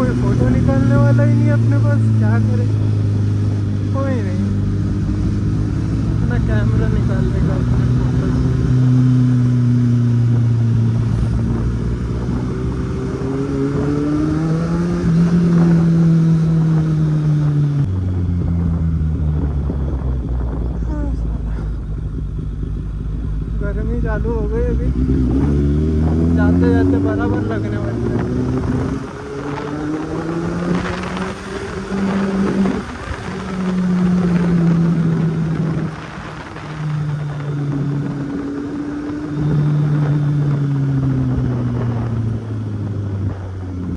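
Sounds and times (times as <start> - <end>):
motorcycle engine accelerating: 0.0 - 43.9
wind noise: 0.0 - 43.9.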